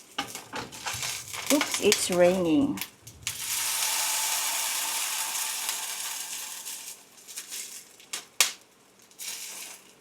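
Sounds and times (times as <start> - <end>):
kitchen things clicking and knocking: 0.0 - 3.4
rain hissing: 0.7 - 7.1.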